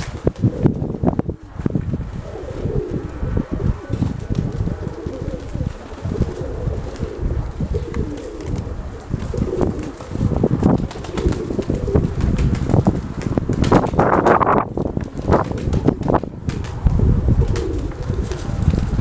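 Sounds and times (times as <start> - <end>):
pigeons cooing: 0.0 - 19.0
wind rumbling on microphone: 0.0 - 19.0.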